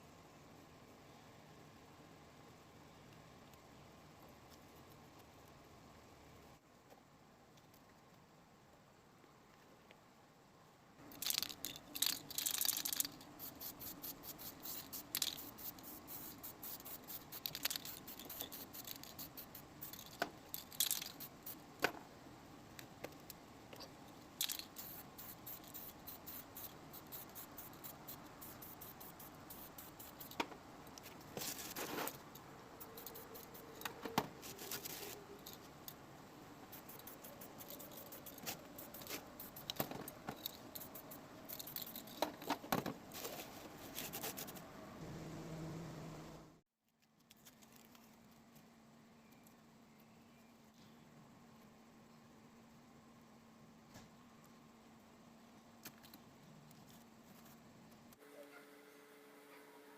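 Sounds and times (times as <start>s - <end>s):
small metal parts clinking: 11.1s - 21.6s, 24.4s - 30.4s, 31.5s - 36.0s, 36.8s - 42.6s.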